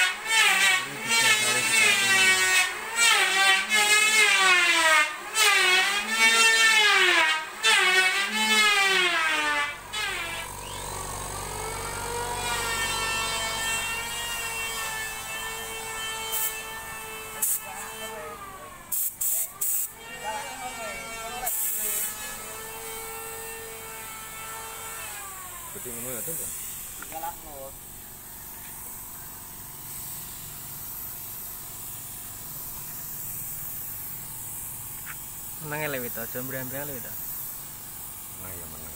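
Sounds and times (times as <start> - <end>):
spray gun hissing: 0.2 - 18.3, 18.9 - 20.0, 21.4 - 23.7, 25.6 - 38.9
motor humming: 9.2 - 18.9.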